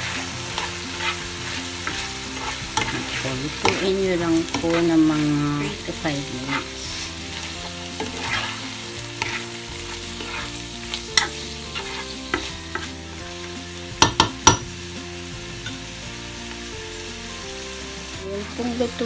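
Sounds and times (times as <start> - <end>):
spatula scraping a pan: 0.0 - 13.2
food sizzling in a frying pan: 0.0 - 19.0.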